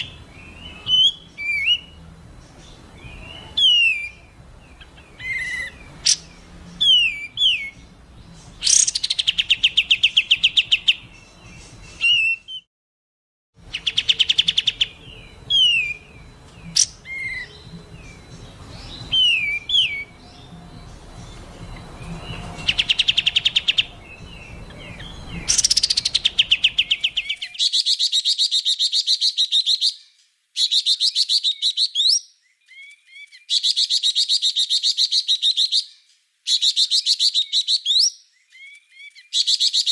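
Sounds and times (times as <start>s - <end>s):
songbird harsh trills: 0.0s - 12.6s, 13.6s - 30.0s.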